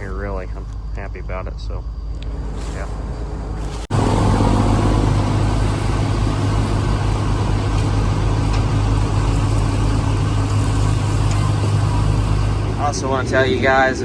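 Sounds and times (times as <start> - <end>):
combine harvester engine drone: 0.0 - 14.0.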